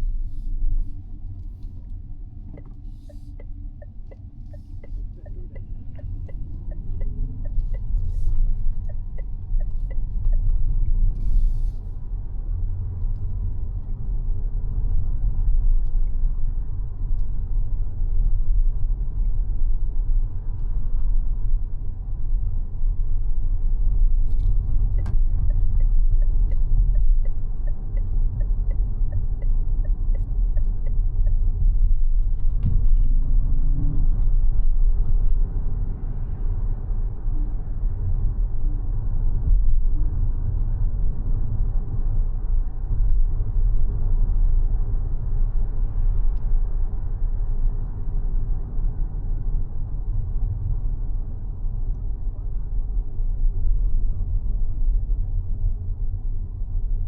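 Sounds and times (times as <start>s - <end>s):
road and tyre rumble: 0.0s - 57.0s
turn signal ticking: 1.6s - 11.8s, 24.4s - 32.4s.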